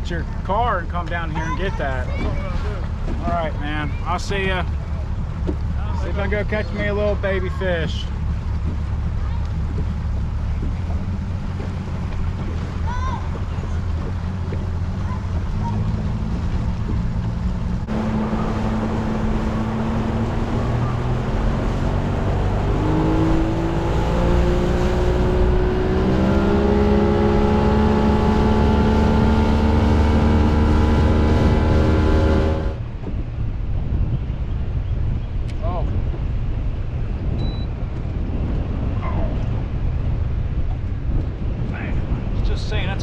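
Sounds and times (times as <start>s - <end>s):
outboard motor running: 0.0s - 33.3s
low wind rumble: 0.0s - 43.0s.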